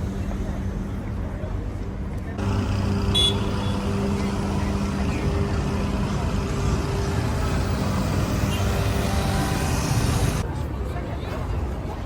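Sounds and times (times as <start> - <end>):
vehicle engine rumble: 2.2 - 10.4.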